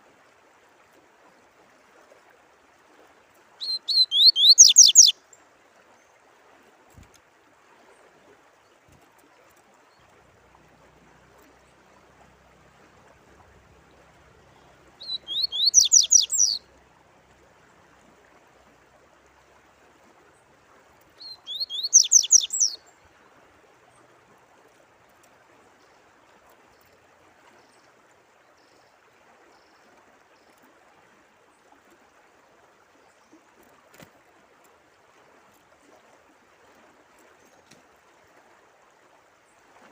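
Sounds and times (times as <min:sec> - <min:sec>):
trickle of running water: 0:00.0 - 0:39.9
songbird chirping: 0:03.6 - 0:05.2, 0:13.5 - 0:16.7, 0:21.1 - 0:23.1.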